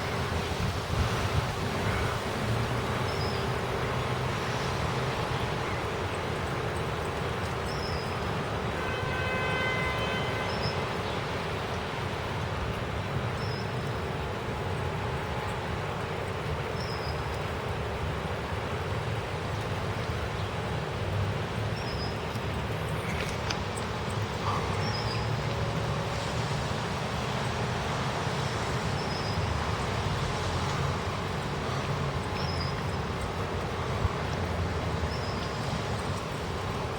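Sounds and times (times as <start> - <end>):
heavy rain and wind: 0.0 - 36.9
held horn-like tone: 8.8 - 10.8.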